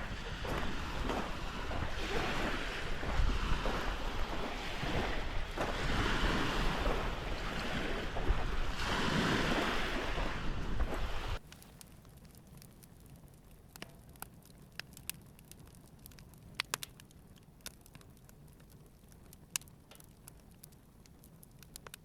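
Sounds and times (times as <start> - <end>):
wind rushing over microphone: 0.0 - 11.4.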